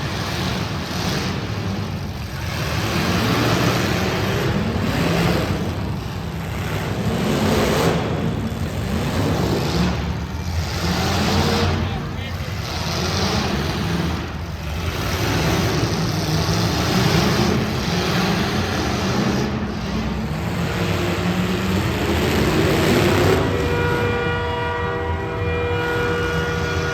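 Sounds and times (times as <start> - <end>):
car engines revving loudly: 0.0 - 26.9
steady horn-like tone: 23.3 - 26.9.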